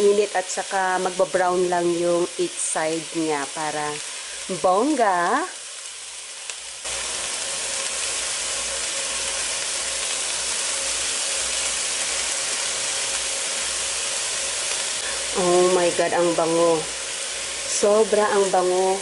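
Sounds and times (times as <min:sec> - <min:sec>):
fish sizzling in a frying pan: 0:00.0 - 0:19.0.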